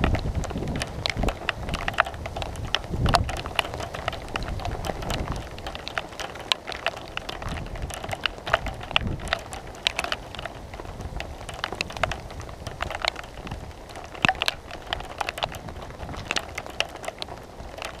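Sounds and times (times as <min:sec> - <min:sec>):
raindrops ticking: 0:00.0 - 0:18.0.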